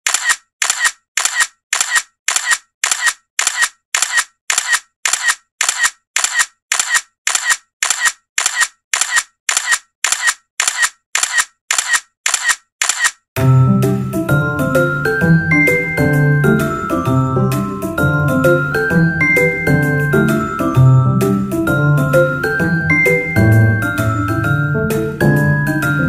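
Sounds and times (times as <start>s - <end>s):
camera shutter clicks: 0.1s - 13.2s.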